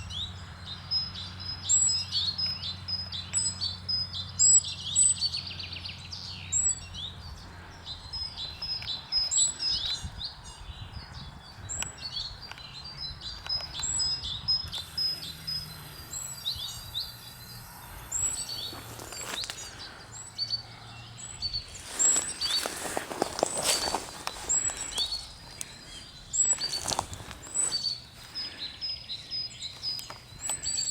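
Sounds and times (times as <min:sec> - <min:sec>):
small birds chirping: 0:00.0 - 0:30.9
brief rustling: 0:21.7 - 0:25.8.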